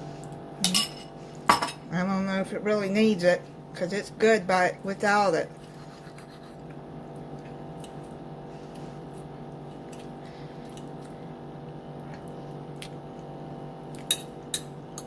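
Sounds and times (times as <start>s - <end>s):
steady low hum: 0.0s - 15.0s
person chewing food: 5.6s - 14.1s.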